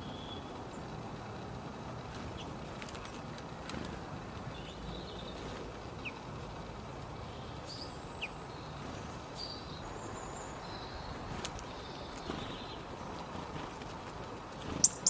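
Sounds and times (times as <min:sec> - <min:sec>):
small bird chirps: 0:07.2 - 0:13.2, 0:14.6 - 0:15.0.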